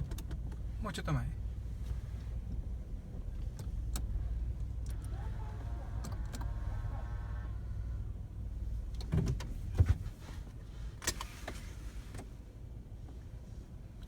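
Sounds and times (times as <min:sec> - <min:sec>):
low rumble inside car cabin: 0:00.0 - 0:14.0
humming motor: 0:04.6 - 0:08.6.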